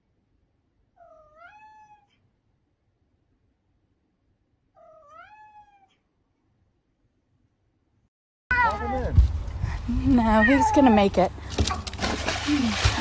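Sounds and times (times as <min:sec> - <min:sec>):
cat meowing: 0:01.0 - 0:02.2, 0:04.8 - 0:06.0, 0:08.5 - 0:09.1, 0:10.3 - 0:11.0.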